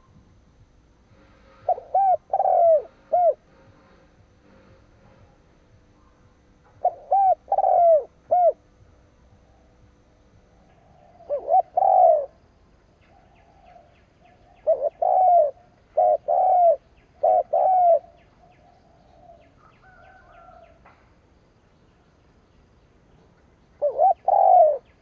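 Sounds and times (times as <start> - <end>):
dove cooing: 1.2 - 5.4, 6.0 - 8.9, 10.6 - 20.8, 23.8 - 25.0.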